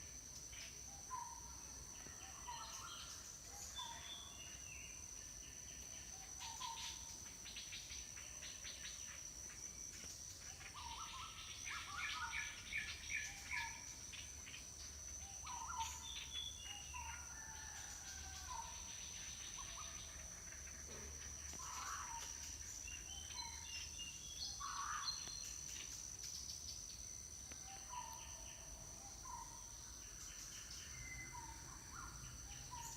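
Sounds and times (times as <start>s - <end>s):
birds calling and chirping: 5.6s - 32.9s
high-pitched insect drone: 8.0s - 32.9s.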